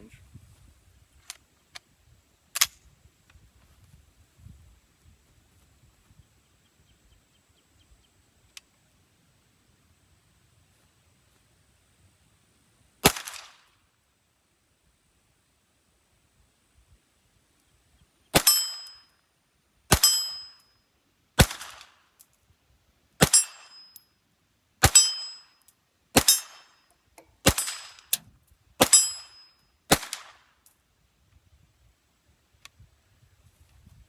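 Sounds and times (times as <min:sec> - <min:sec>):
pistol shots: 0:13.0 - 0:13.6, 0:18.4 - 0:18.8, 0:19.9 - 0:20.4, 0:21.4 - 0:21.9, 0:23.2 - 0:23.8, 0:24.8 - 0:25.3, 0:26.2 - 0:26.7, 0:27.4 - 0:28.2, 0:28.8 - 0:29.3, 0:29.9 - 0:30.4.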